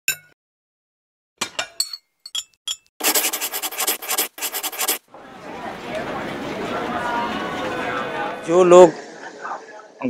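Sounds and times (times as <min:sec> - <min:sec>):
glassy clinks: 0:01.6 - 0:02.9.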